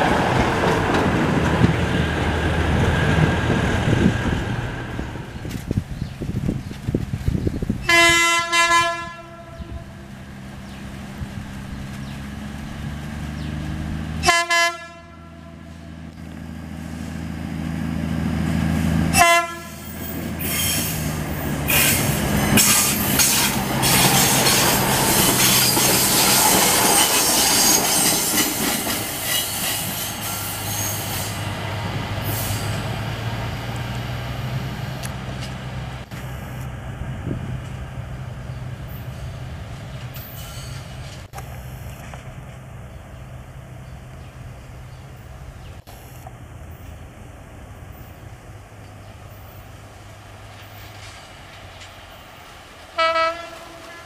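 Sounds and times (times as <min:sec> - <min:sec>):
train wheels clattering on rails: 0:00.0 - 0:04.6, 0:19.9 - 0:33.0
train horn: 0:07.9 - 0:10.0, 0:14.2 - 0:16.0, 0:19.1 - 0:20.0, 0:53.0 - 0:54.0
diesel engine humming: 0:08.5 - 0:53.3.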